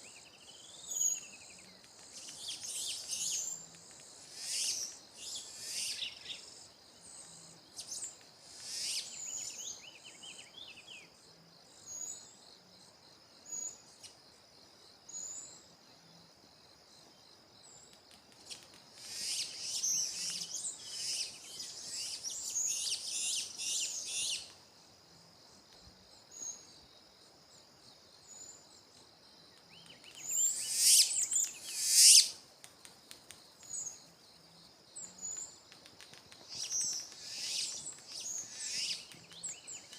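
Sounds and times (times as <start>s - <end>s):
songbirds warbling and chirping: 0.0s - 12.6s, 19.0s - 24.8s, 29.5s - 32.4s, 36.4s - 39.9s.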